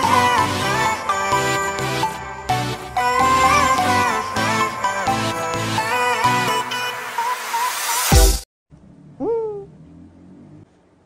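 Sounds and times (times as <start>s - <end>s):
person humming mm: 9.2s - 10.6s.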